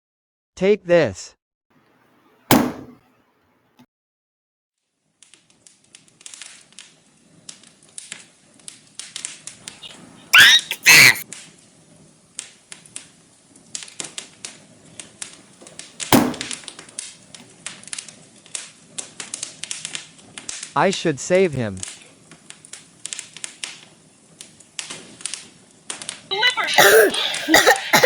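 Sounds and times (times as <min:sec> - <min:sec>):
loud sharp knock: 0:02.5 - 0:03.0, 0:16.2 - 0:16.5
gliding cries: 0:09.8 - 0:11.2, 0:26.3 - 0:28.0.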